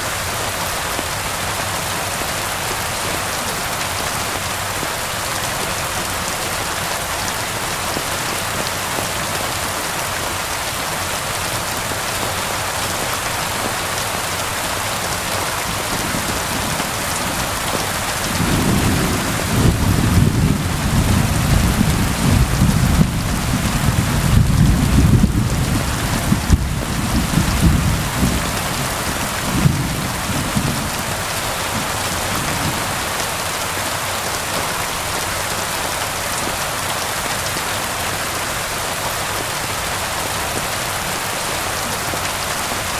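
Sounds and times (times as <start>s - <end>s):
steady rain falling: 0.0s - 42.9s
low roll of thunder: 18.3s - 31.1s.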